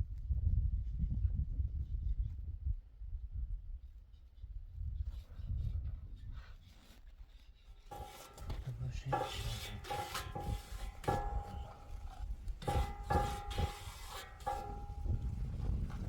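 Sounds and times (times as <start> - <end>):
metal clanking: 7.9 - 16.0
metal scraping: 7.9 - 16.0.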